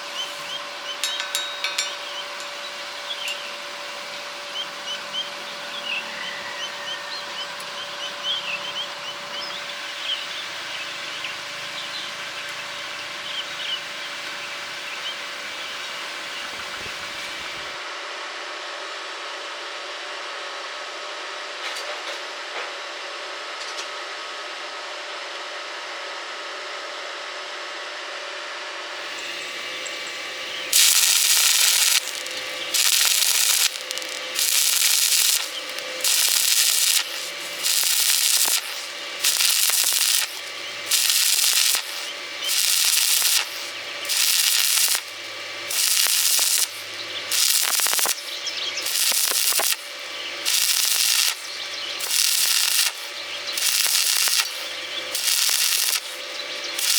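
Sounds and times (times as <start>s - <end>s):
welding arc crackling: 0.0s - 5.0s, 29.0s - 56.9s.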